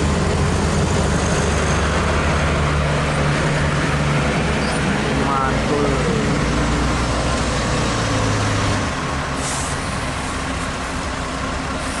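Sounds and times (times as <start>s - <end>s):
truck engine idling: 0.0s - 12.0s
air brake hiss: 9.4s - 9.9s.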